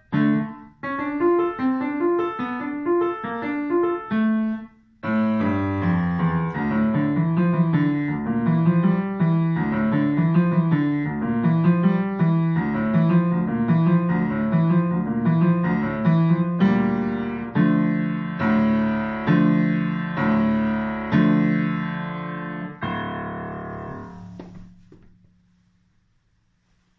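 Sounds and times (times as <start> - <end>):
piano playing: 0.0 - 25.7.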